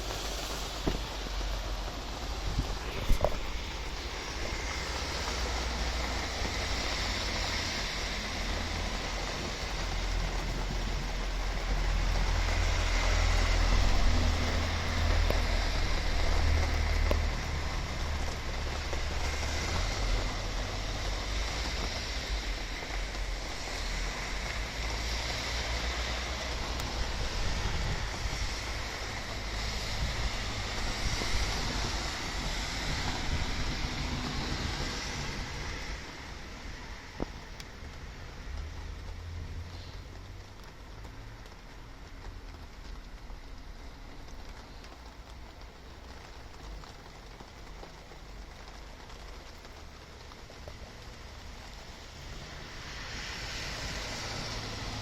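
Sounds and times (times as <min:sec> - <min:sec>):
storm wind gusting: 0:00.0 - 0:37.8
wind buffeting microphone: 0:00.8 - 0:07.4, 0:26.7 - 0:35.9.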